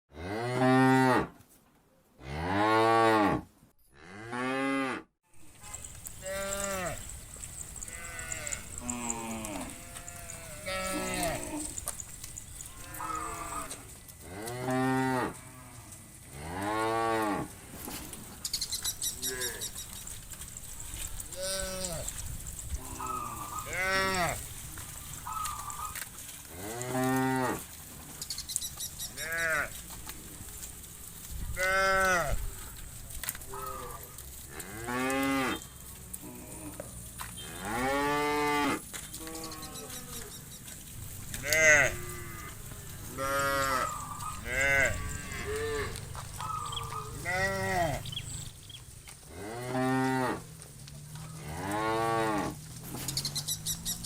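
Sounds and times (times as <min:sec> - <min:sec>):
cattle mooing: 0:04.0 - 0:17.5, 0:22.8 - 0:26.0, 0:41.0 - 0:50.4.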